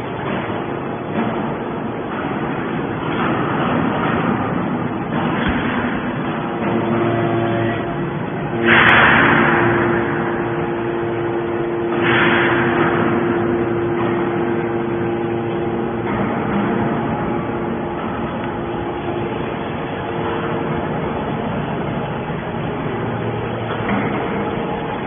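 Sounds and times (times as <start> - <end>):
harsh noise bursts: 5.6 - 25.0.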